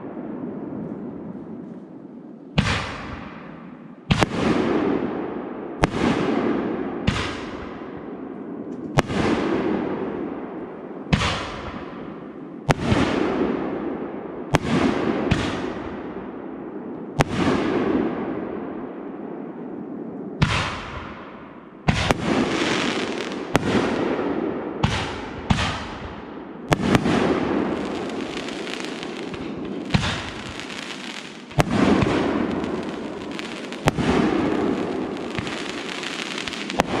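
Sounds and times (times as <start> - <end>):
fireworks bangs: 2.6 - 5.1, 20.4 - 37.0.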